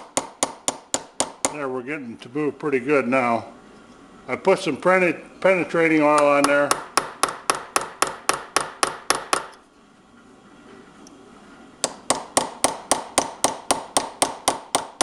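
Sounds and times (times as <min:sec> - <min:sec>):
hammer tapping a punch: 0:00.0 - 0:01.6, 0:06.1 - 0:09.6, 0:11.8 - 0:15.0.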